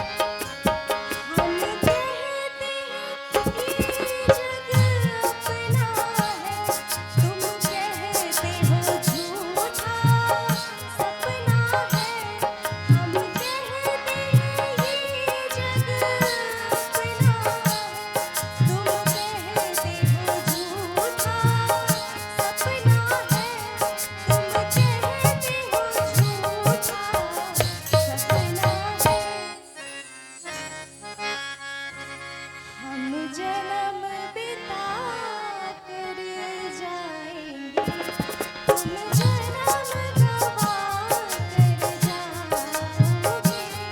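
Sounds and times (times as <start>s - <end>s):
harmonium: 0.0s - 43.9s
woman singing: 1.3s - 29.8s, 32.8s - 38.2s, 38.8s - 43.9s
hand drums beat: 3.4s - 13.5s, 15.8s - 29.3s, 37.8s - 43.9s.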